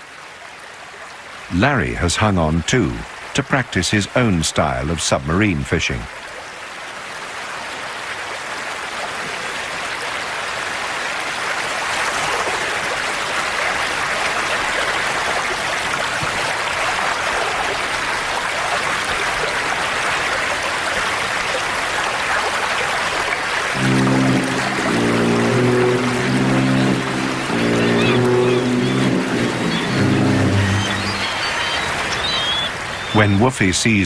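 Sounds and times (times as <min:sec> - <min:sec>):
river water rushing: 0:06.1 - 0:33.2.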